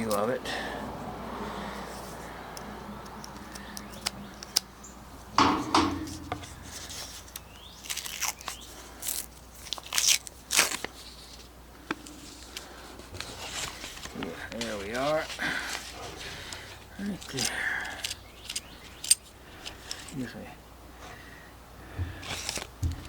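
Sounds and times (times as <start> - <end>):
paper wrapper tearing and rustling: 6.7 - 11.4, 22.3 - 22.7.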